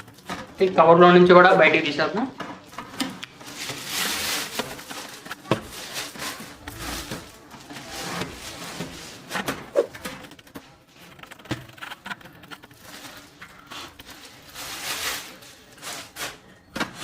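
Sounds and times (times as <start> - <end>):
plastic wrapping crinkling: 3.4 - 6.6.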